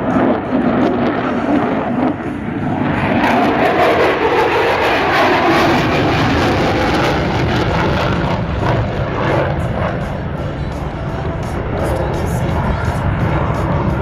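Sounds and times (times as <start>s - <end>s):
jet engine roar: 0.0s - 14.0s.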